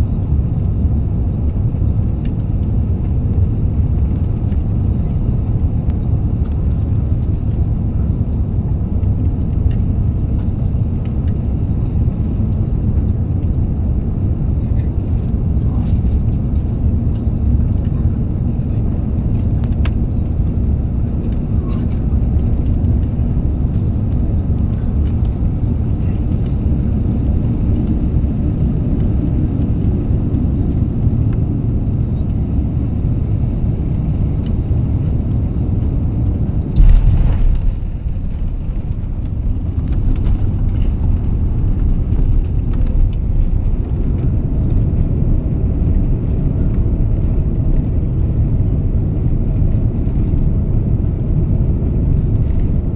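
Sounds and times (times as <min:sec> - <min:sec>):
airliner cabin rumble: 0:00.0 - 0:52.9
loud thump: 0:36.8 - 0:40.4.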